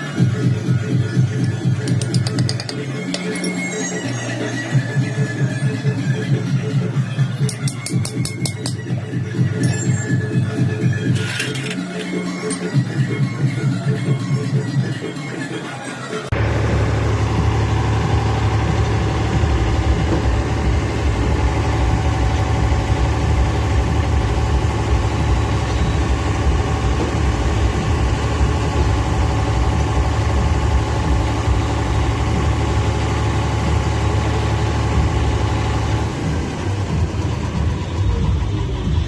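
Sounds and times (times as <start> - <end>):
tractor diesel engine idling: 16.3 - 39.0.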